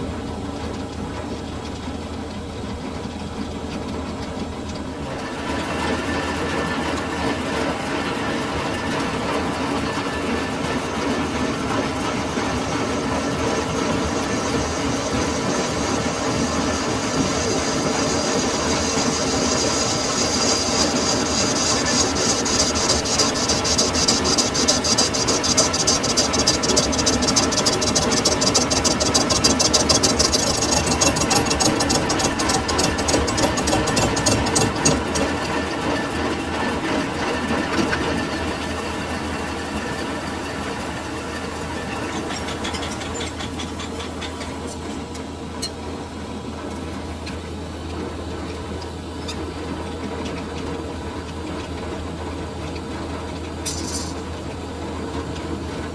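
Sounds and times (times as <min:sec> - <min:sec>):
lathe humming: 0:00.0 - 0:48.8
lathe cutting metal: 0:05.1 - 0:45.1.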